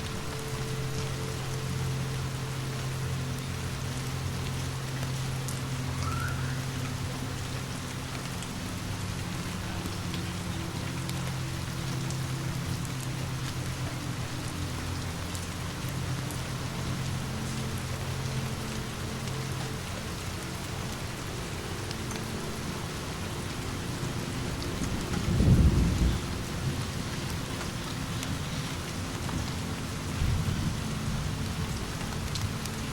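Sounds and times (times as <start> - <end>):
steady rain falling: 0.0 - 32.9
low rumbling thunder: 25.1 - 26.9.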